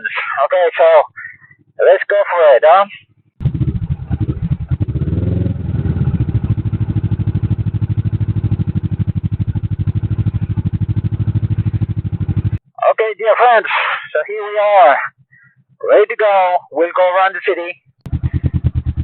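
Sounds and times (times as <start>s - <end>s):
motorcycle engine revving and idling: 3.0s - 12.6s, 17.8s - 19.0s.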